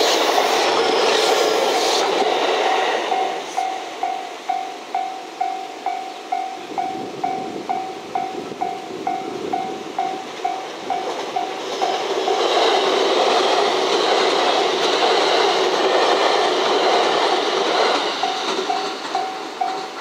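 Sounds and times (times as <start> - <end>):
electric train passing: 0.0 - 20.0
level-crossing bell ringing: 3.1 - 12.0, 18.2 - 20.0.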